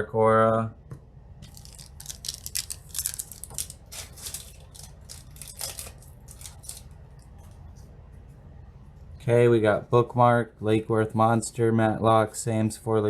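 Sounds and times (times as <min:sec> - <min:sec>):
foil pack crinkling: 0:01.4 - 0:07.3.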